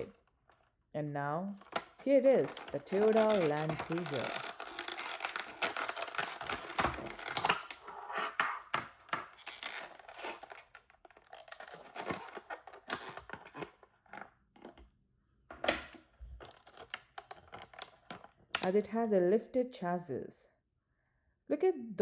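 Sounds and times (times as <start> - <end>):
packaging crinkling and rustling: 0.0 - 0.7, 1.6 - 14.8, 16.3 - 18.4.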